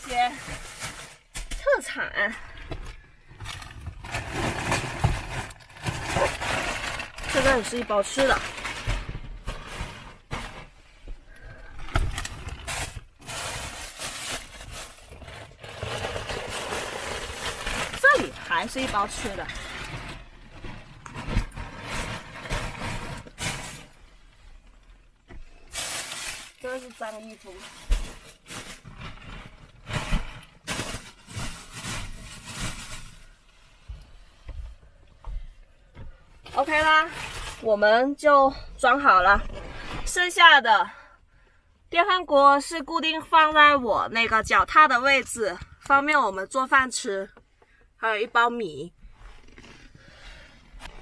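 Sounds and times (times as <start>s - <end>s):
bags rustling and scraping: 0.0s - 1.8s, 3.3s - 33.5s, 36.4s - 38.3s, 49.1s - 51.0s.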